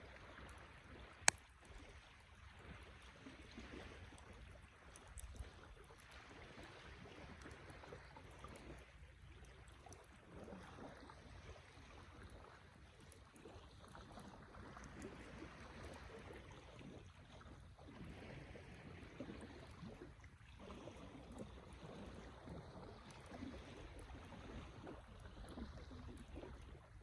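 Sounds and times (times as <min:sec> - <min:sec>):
campfire crackling and popping: 0:00.4 - 0:02.9, 0:04.0 - 0:05.7.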